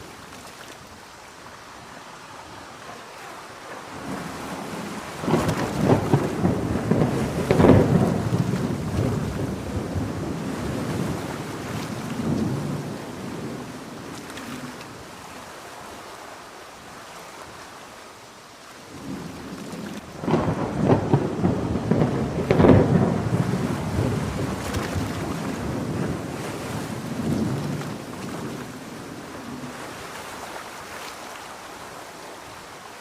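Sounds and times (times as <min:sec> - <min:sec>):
heavy rain: 0:00.0 - 0:33.0
rolling thunder: 0:03.8 - 0:14.1, 0:20.0 - 0:29.7.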